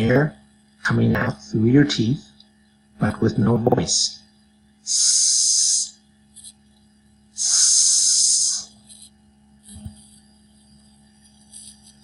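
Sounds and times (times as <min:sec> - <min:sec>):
man hissing through teeth: 0:04.9 - 0:05.9, 0:07.4 - 0:08.7.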